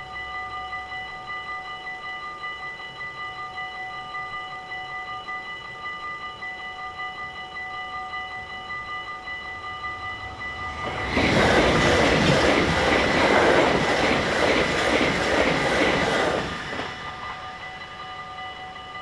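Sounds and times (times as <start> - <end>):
crossing warning bells: 0.0 - 19.0
train passing at speed: 8.3 - 19.0.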